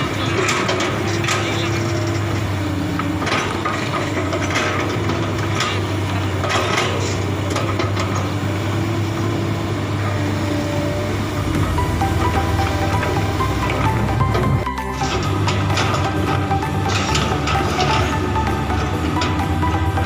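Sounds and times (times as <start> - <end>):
metal clanking and squealing: 0.0 - 9.2, 9.9 - 20.0
excavator diesel engine running: 0.0 - 20.0.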